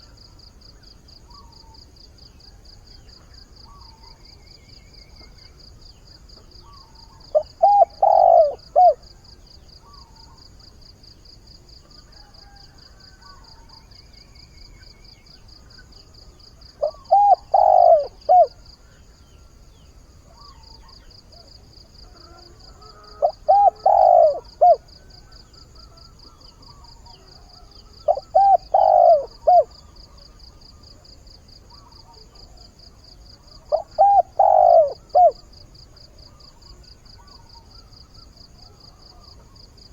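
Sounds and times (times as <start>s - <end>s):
dove cooing: 6.8s - 9.1s, 16.8s - 18.6s, 20.3s - 30.3s, 33.4s - 35.5s.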